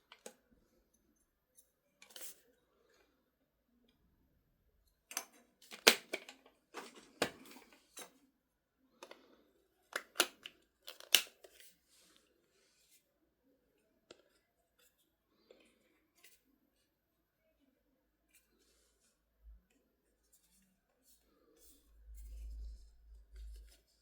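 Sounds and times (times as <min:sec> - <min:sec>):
plastic clicks and snaps: 0:05.1 - 0:06.5, 0:09.9 - 0:11.6.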